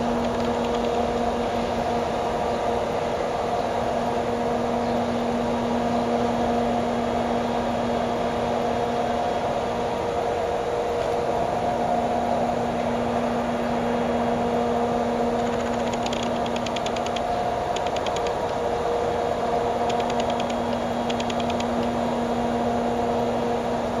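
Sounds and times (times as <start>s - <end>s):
wheels clicking over rail joints: 0.0s - 1.4s, 15.3s - 18.8s, 19.7s - 22.0s
freight train rumbling past: 0.0s - 24.0s.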